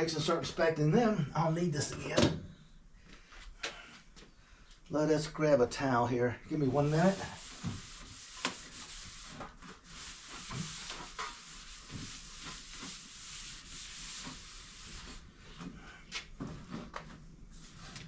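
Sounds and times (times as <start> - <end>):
shop towel scrubbing: 6.5 - 15.8.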